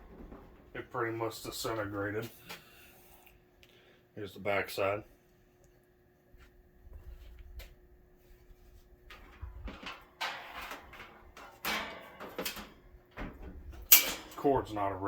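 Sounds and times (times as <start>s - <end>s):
fan being moved with knocks and scrapes: 0.0s - 0.8s, 8.3s - 14.6s.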